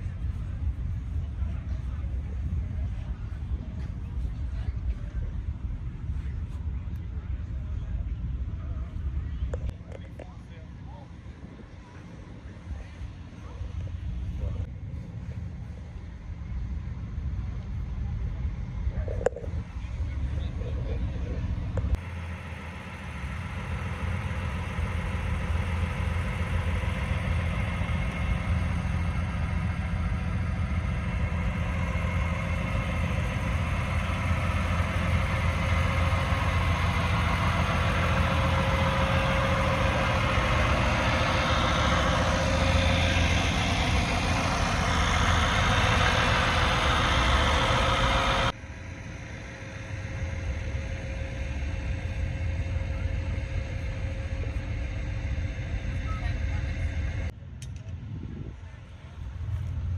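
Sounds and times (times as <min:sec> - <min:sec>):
diesel truck engine idling: 0:21.8 - 0:57.3.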